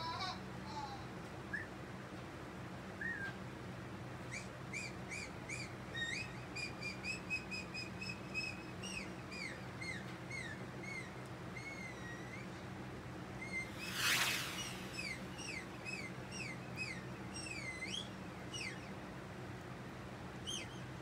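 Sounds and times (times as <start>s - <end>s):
songbird whistled chirps: 3.0s - 3.3s, 13.4s - 18.9s, 20.4s - 20.9s
low steady hum: 8.2s - 21.0s.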